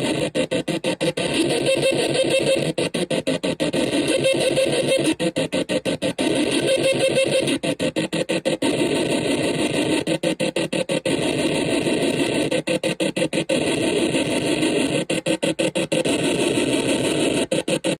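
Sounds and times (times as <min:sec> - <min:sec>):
harsh electronic noise drone: 0:00.0 - 0:18.0.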